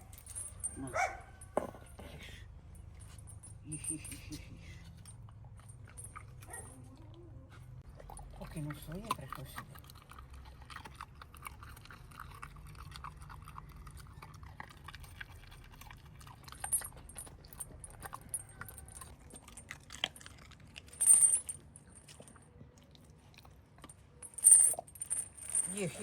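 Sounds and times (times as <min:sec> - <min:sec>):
pet crunching food: 0:07.8 - 0:24.2.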